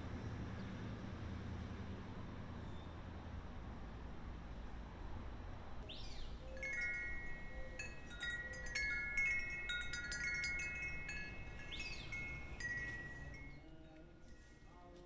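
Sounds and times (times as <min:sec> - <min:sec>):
wind chimes ringing: 0:06.5 - 0:14.7.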